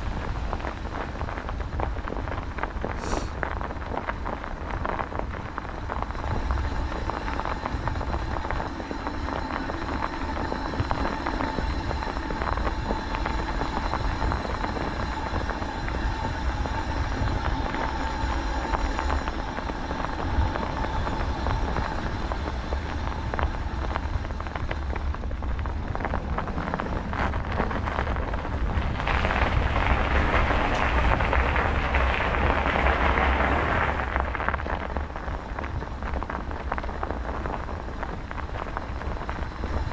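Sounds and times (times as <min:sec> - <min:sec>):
wind rumbling on microphone: 0:00.0 - 0:39.9
tyres rolling hiss: 0:03.0 - 0:03.4.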